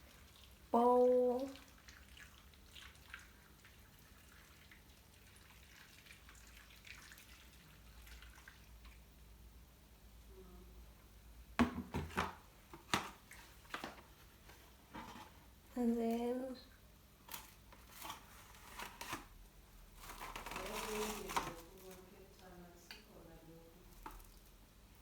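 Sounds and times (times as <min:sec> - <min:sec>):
water dripping into a bowl: 0:00.0 - 0:09.1.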